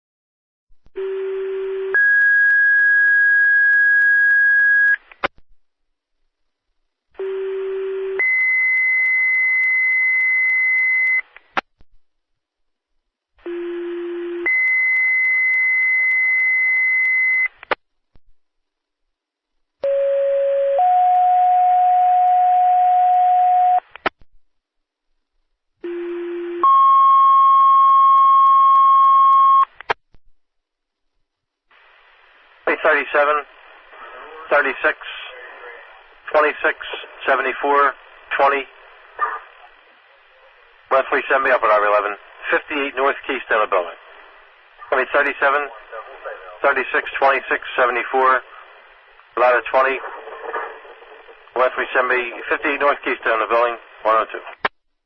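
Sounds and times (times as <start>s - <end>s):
radio hiss: 31.7s - 54.7s
radio transmission click: 49.2s - 54.8s.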